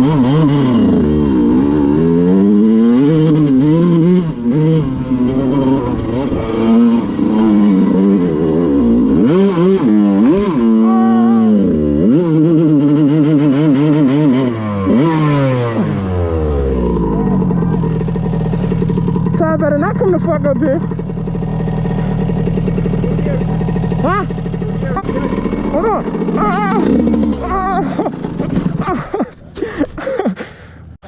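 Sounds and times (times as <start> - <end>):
dirt bike engine revving: 0.0 - 29.8.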